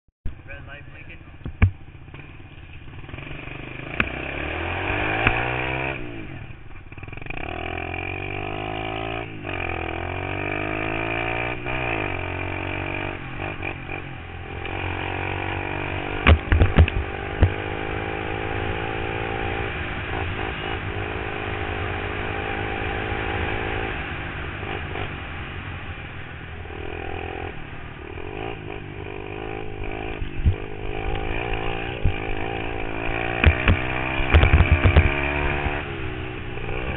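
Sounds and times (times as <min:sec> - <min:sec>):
loud thumps: 0:01.4 - 0:01.9, 0:16.2 - 0:17.6, 0:33.3 - 0:35.3
pit bike engine revving: 0:01.5 - 0:25.7, 0:26.6 - 0:36.9.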